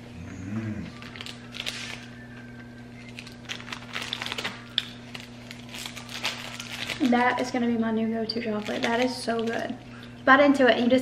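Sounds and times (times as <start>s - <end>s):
low hum: 0.0s - 11.0s
crunchy wafer being chewed: 0.9s - 2.1s, 3.0s - 7.1s.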